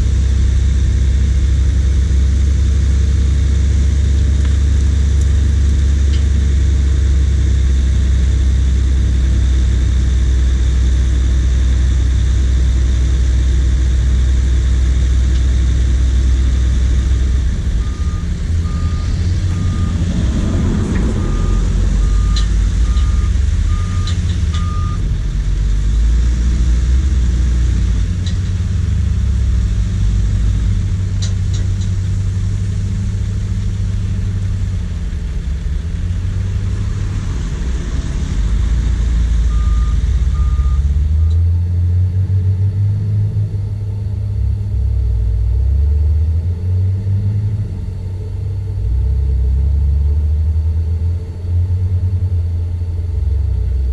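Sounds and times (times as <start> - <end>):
heavy diesel truck engines: 0.0 - 53.9
reversing alarm beeping: 17.0 - 25.1, 38.2 - 41.4.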